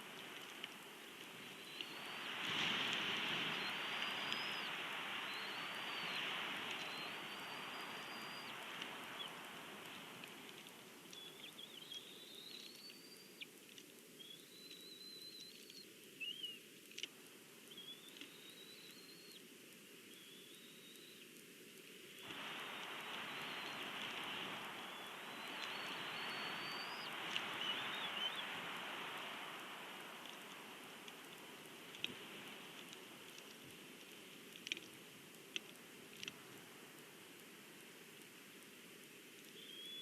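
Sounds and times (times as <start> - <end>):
faint clicks: 0.0 - 40.0
steady outdoor hiss: 0.0 - 40.0
small bird whistling: 1.5 - 2.3, 3.5 - 6.2, 6.8 - 8.6, 14.2 - 16.6, 17.7 - 19.4, 20.2 - 21.2, 22.6 - 23.9, 24.6 - 28.6, 39.6 - 40.0.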